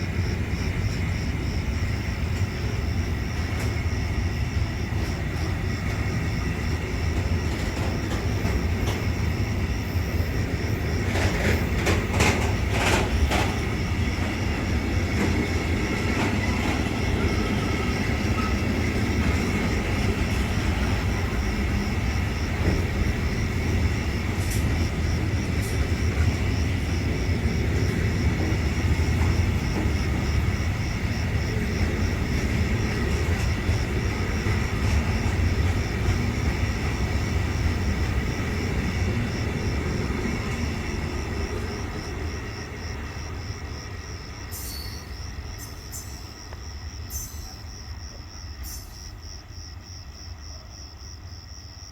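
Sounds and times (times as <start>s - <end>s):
train rumble: 0.0s - 51.9s
train wheel clicks: 4.9s - 42.1s.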